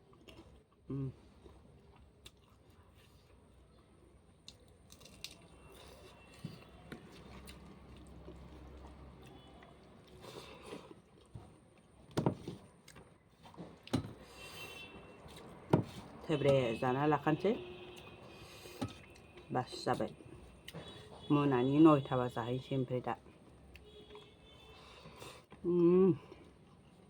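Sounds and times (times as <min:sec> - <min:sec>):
person chewing food: 0:00.0 - 0:03.7, 0:04.4 - 0:14.4.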